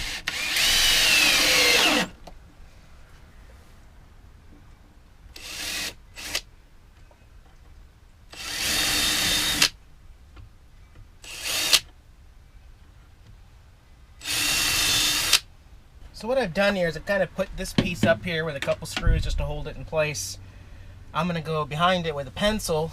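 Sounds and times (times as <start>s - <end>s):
cordless drill driving screws: 0.0s - 2.2s, 5.4s - 6.5s, 8.3s - 9.8s, 11.2s - 11.9s, 14.2s - 15.5s.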